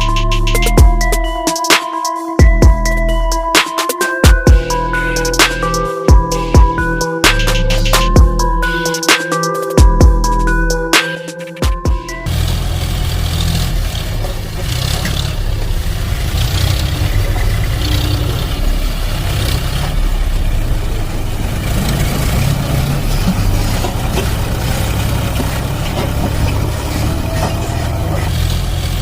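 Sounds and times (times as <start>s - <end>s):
heavy engine rumbling: 12.1s - 29.0s.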